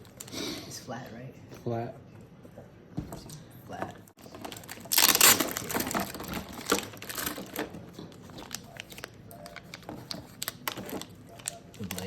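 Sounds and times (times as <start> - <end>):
plastic packaging crinkling: 0.0 - 0.4, 4.2 - 12.0
plastic parts clicking and rustling: 4.2 - 12.0.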